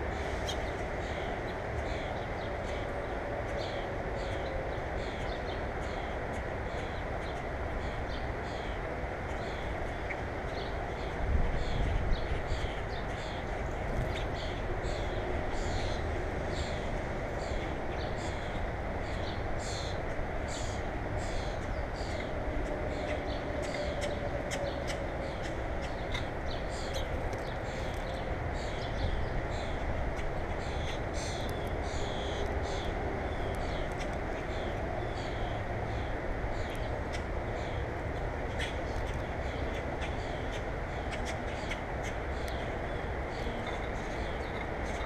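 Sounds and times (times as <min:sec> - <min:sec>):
low outdoor rumble: 0:00.0 - 0:45.0
small birds chirping: 0:17.4 - 0:37.8.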